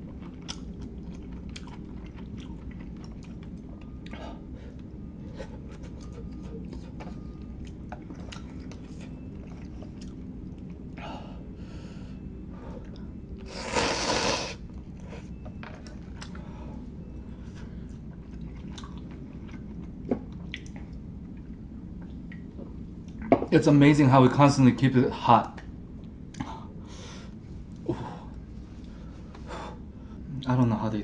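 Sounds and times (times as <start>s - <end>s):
wet chewing and biting: 0.0s - 10.8s, 14.8s - 16.4s, 18.0s - 21.0s.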